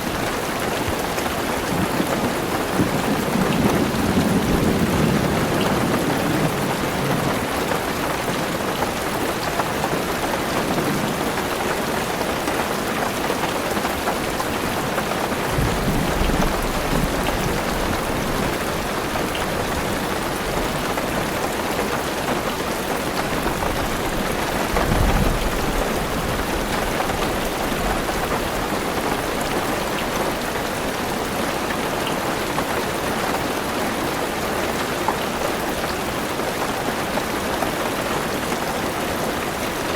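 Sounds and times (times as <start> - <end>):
heavy rain on car roof: 0.0 - 39.9
distant thunder: 1.7 - 7.8, 14.5 - 21.1.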